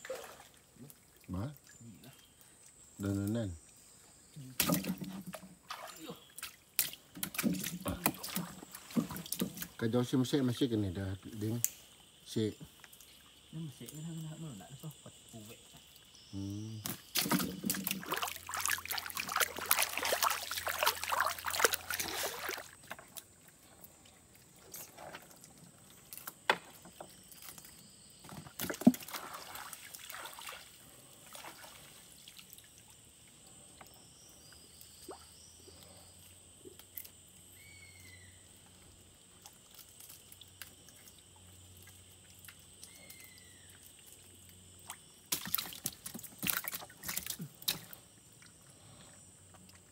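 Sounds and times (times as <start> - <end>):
water dripping: 0.0 - 27.8, 28.6 - 36.0, 36.6 - 48.7
water splashing off net: 17.1 - 23.1, 28.6 - 32.4, 45.3 - 47.9.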